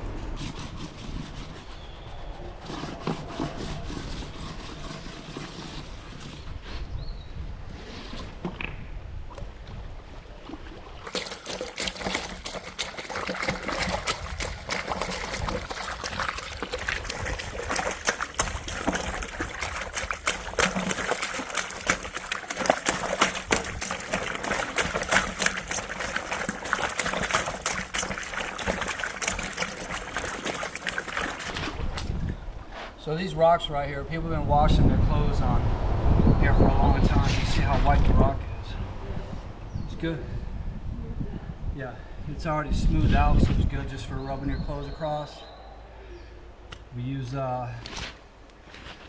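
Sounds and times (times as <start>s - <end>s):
river water splashing over rocks: 11.1s - 31.6s.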